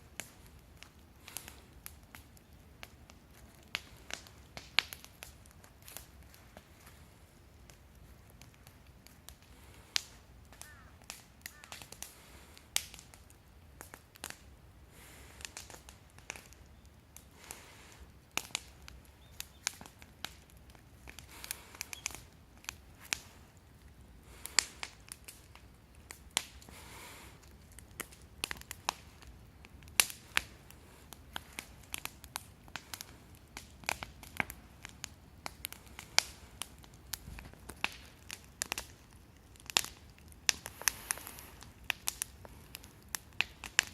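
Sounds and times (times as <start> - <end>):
wood fire snapping and popping: 0.0 - 43.9
rushing flame noise: 24.2 - 43.9.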